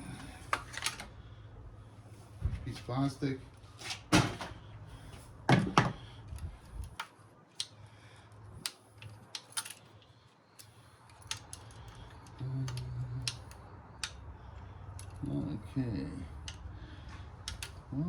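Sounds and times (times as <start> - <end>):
metal parts and tools clicking: 8.6 - 14.2, 14.9 - 15.2, 17.4 - 17.9.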